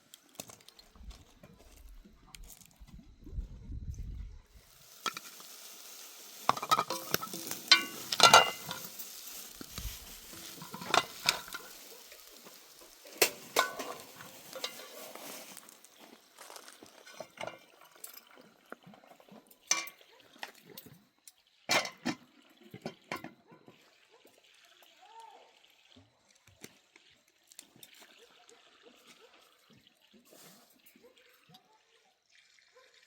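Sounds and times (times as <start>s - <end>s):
metal utensil scraping cookware: 6.3s - 15.5s, 17.0s - 18.3s, 19.7s - 20.0s, 21.7s - 22.2s.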